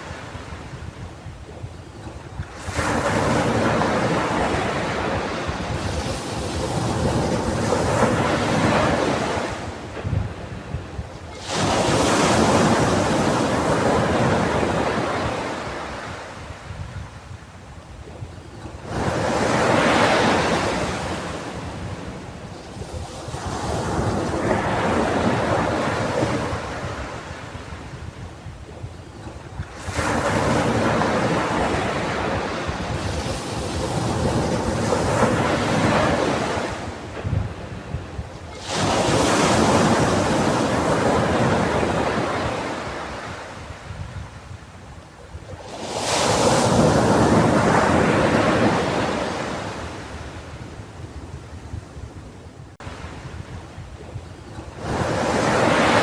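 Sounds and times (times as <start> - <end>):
sea waves on a beach: 0.0 - 56.0
wind rumble on microphone: 0.0 - 56.0
ocean wave breaking: 11.3 - 16.3, 54.7 - 56.0.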